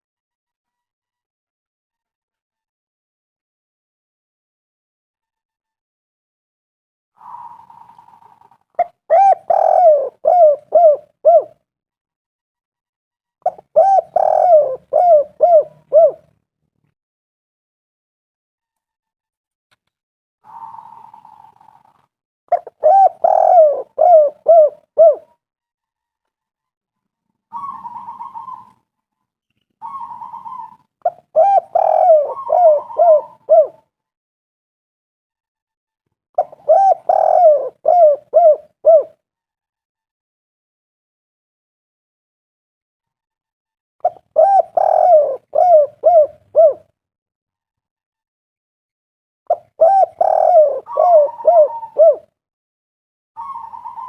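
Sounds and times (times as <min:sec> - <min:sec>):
dove cooing: 0:07.2 - 0:11.6, 0:13.4 - 0:16.3, 0:22.5 - 0:25.3, 0:27.5 - 0:28.7, 0:29.8 - 0:33.8, 0:36.4 - 0:39.2, 0:44.0 - 0:46.9, 0:49.5 - 0:52.3, 0:53.4 - 0:54.0
faint bird trill: 0:27.5 - 0:28.8, 0:29.7 - 0:33.7, 0:49.5 - 0:52.2, 0:53.4 - 0:54.0.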